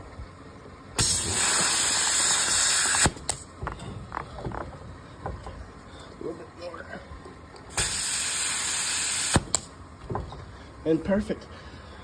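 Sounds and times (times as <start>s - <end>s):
compressed air hissing into tire: 1.0s - 3.4s, 7.7s - 9.7s.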